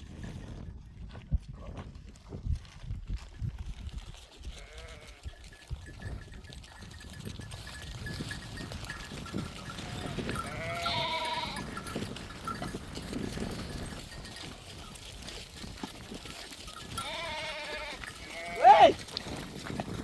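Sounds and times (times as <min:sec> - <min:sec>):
flock bleating in background: 0:09.9 - 0:11.6
wavering bleat: 0:09.9 - 0:11.6, 0:17.0 - 0:19.0.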